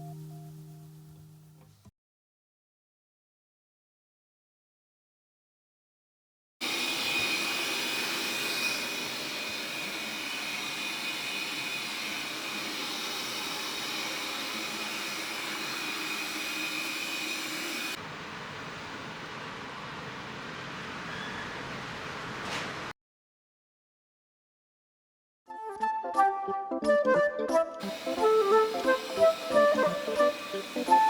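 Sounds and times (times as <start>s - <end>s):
robot vacuum motor and fan whine: 6.6s - 22.7s, 27.8s - 31.0s.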